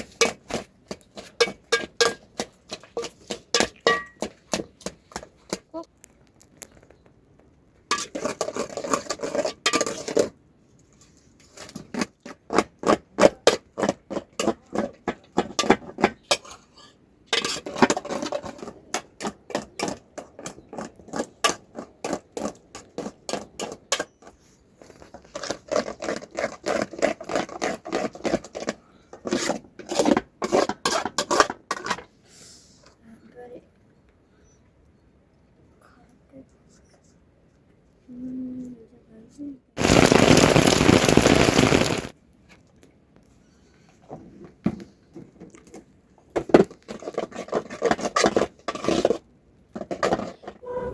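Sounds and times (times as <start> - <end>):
utensils knocking and scraping pot: 1.2 - 4.4.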